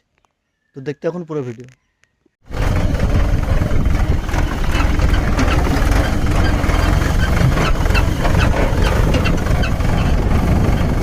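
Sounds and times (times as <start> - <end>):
tractor diesel engine running: 2.4 - 11.0.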